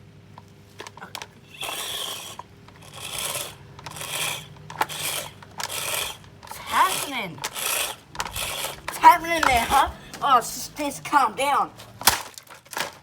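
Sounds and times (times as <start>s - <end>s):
box fan motor hum: 0.0s - 13.0s
rasping scrape of fan: 0.8s - 10.4s.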